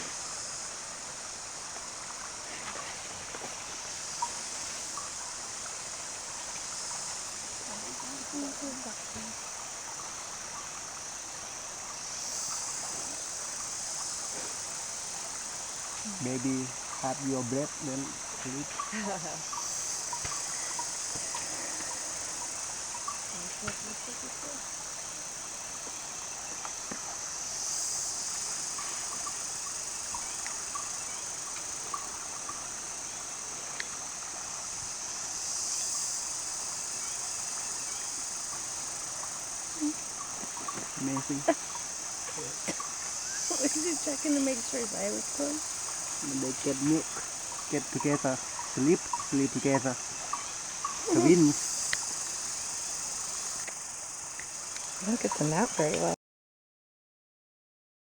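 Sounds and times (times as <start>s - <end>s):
insect chorus drone: 0.0s - 56.2s
water flowing with hiss: 0.0s - 56.2s
faint ticks: 18.4s - 24.0s, 28.8s - 30.9s, 33.7s - 34.0s, 50.2s - 52.4s, 53.5s - 56.1s.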